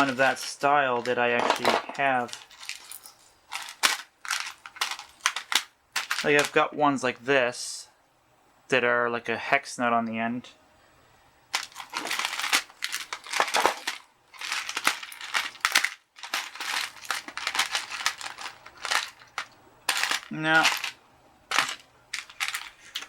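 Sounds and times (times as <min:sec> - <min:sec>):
small metal parts rattling and clinking: 0:00.0 - 0:06.6, 0:11.5 - 0:23.0.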